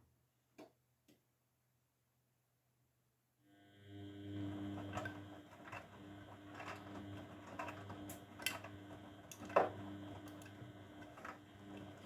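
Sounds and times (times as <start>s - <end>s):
washing machine motor hum: 3.6s - 12.0s.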